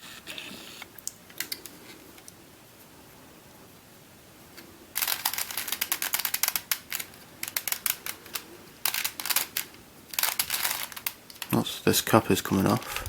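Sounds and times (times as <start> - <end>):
plastic puzzle pieces clicking: 5.0 - 11.5.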